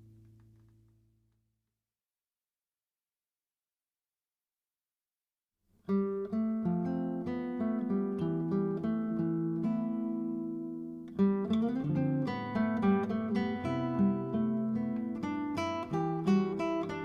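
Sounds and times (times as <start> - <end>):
acoustic guitar music: 5.8 - 17.0.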